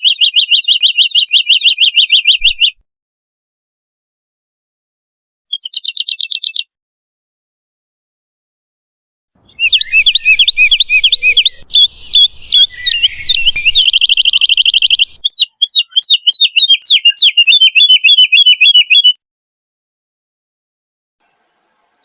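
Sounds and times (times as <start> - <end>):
woodlark singing: 0.0 - 2.8, 9.4 - 19.2.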